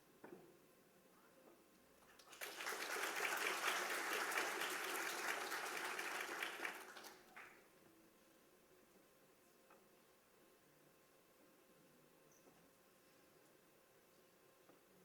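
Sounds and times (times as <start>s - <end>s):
audience applauding: 2.2s - 7.6s.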